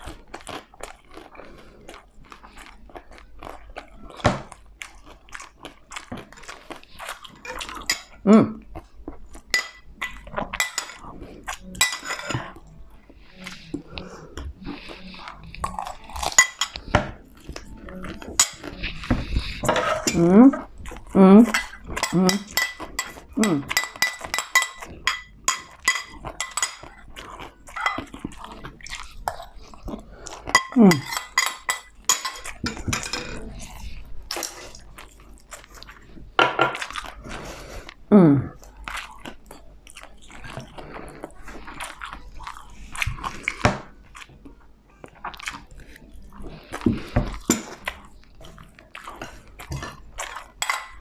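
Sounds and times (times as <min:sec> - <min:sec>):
person chewing and crunching food: 0:00.0 - 0:51.0
utensils clinking against a plate: 0:07.3 - 0:08.2, 0:09.5 - 0:12.6, 0:15.6 - 0:20.5, 0:21.4 - 0:28.4, 0:30.4 - 0:33.5, 0:46.9 - 0:47.9, 0:49.6 - 0:51.0.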